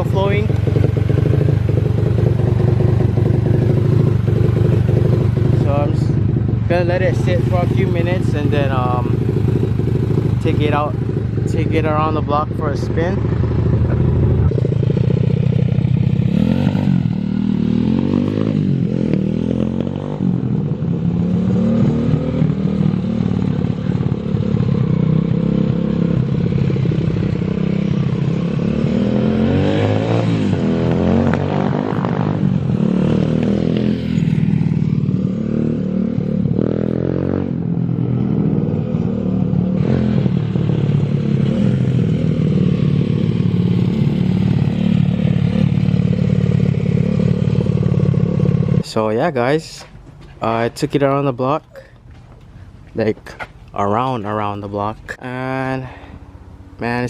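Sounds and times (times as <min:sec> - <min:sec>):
pit bike engine revving: 0:00.0 - 0:57.0.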